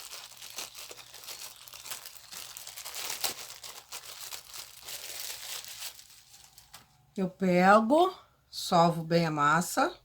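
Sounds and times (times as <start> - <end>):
clay packet crinkling: 0.0 - 7.1.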